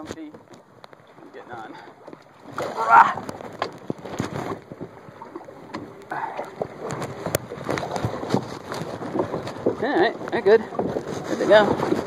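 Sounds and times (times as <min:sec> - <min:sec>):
knocks and scrapes against kayak hull: 0:00.0 - 0:12.0.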